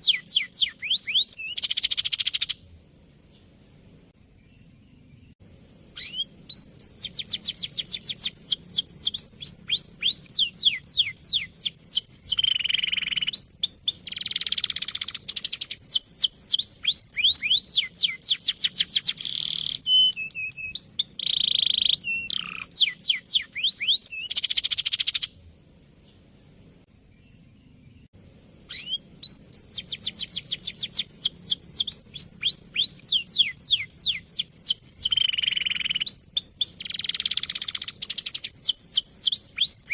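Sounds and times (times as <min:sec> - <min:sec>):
canary singing: 0:00.0 - 0:03.5, 0:04.5 - 0:25.4, 0:28.6 - 0:39.9.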